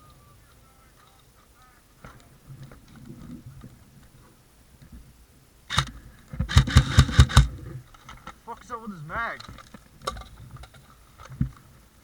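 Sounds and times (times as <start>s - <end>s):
airsoft gun shot: 5.7s - 7.6s.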